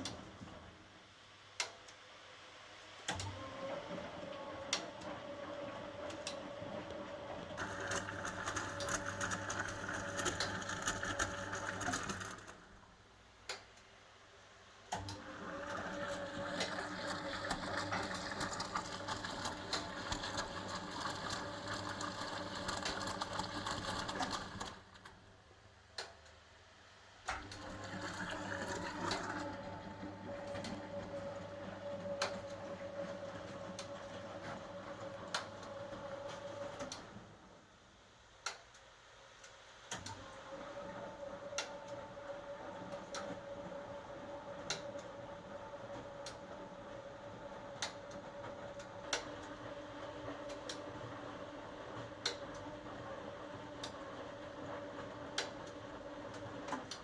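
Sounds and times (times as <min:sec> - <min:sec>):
washing machine drum turning: 0:15.0 - 0:25.4, 0:27.4 - 0:37.0.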